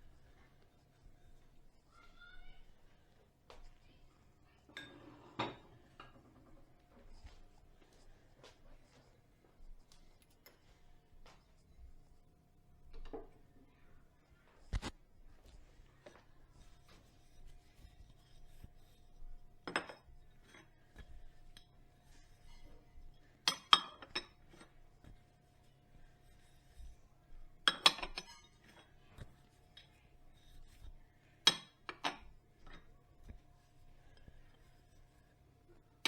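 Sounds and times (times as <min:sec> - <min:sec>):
glassware and cutlery clinking: 0:04.6 - 0:06.2, 0:19.6 - 0:20.7, 0:21.5 - 0:25.0, 0:27.6 - 0:30.5, 0:31.4 - 0:32.9.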